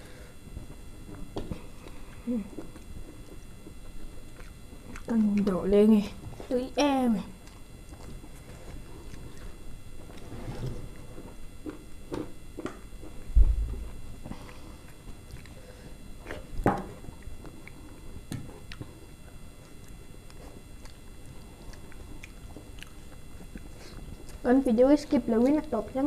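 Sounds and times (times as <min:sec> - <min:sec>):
chewing and lip smacks: 0:01.5 - 0:05.6, 0:07.4 - 0:10.2, 0:12.6 - 0:15.6, 0:16.2 - 0:24.5.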